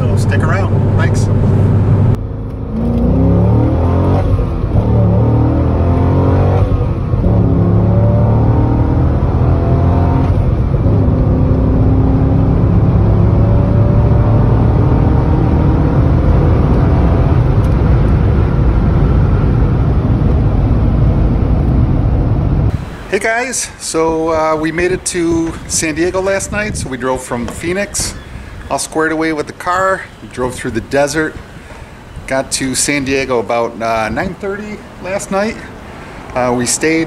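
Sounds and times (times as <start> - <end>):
car engine accelerating: 0.0 - 22.8
road noise: 0.0 - 37.0.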